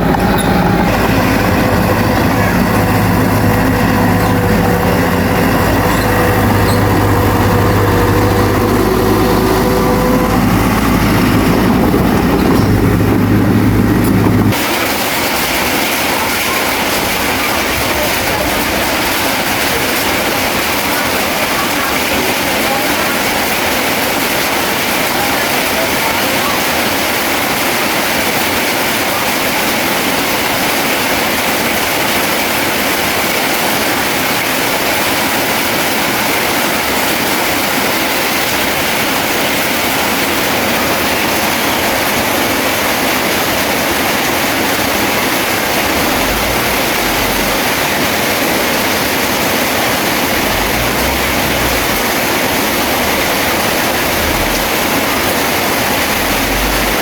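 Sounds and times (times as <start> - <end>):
low rumbles: 0.0 - 20.9, 44.5 - 57.0
heavy rain hissing: 0.0 - 57.0.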